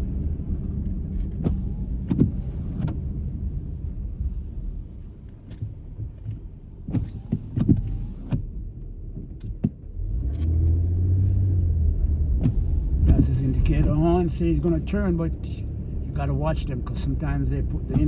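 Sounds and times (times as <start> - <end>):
car engine and road rumble: 0.0 - 18.0
sharp clicks and knocks: 5.4 - 8.5.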